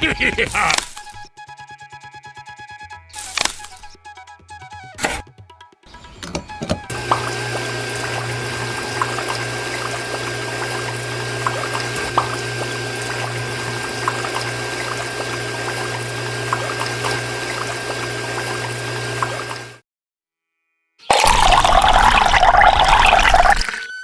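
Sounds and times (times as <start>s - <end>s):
water pump motor humming: 6.2s - 19.8s, 21.1s - 23.8s
water drips: 6.6s - 19.7s, 21.1s - 23.8s
water pouring and splashing: 6.9s - 19.8s, 21.1s - 23.8s.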